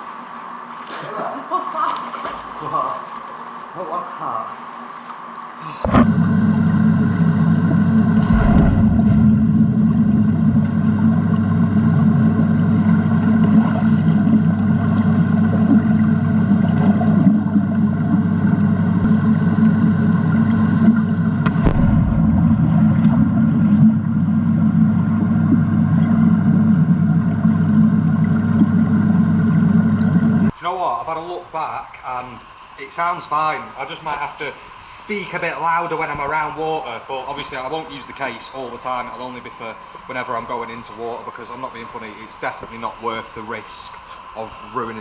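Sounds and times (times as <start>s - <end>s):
boat engine droning: 5.7s - 30.5s
low thumps: 8.2s - 11.4s, 21.4s - 24.0s.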